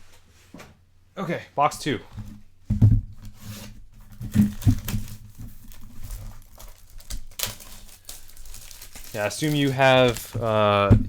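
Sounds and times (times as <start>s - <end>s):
dull knocks of box: 2.1s - 5.6s
wrapping tearing and crinkling: 3.6s - 11.0s.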